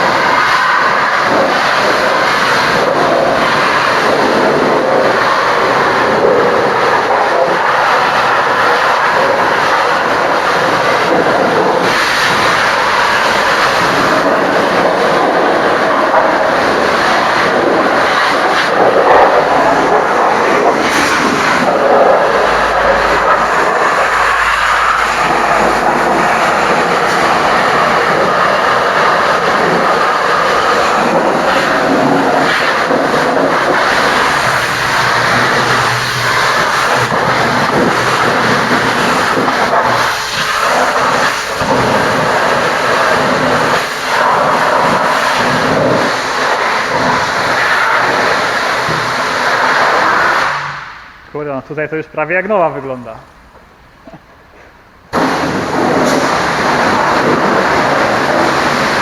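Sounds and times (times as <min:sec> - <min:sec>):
pressure washer spraying water: 0:00.0 - 0:51.2, 0:55.1 - 0:59.0.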